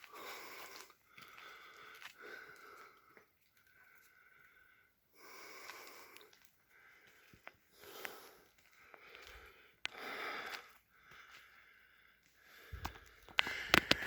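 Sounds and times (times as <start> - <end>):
person breathing hard: 0.0 - 14.0
faint clicks: 12.8 - 14.0.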